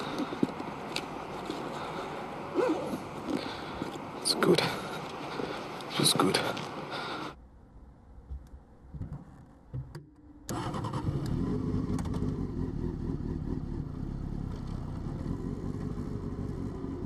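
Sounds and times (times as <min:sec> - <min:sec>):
motorcycle engine starting and idling: 0:10.4 - 0:17.0.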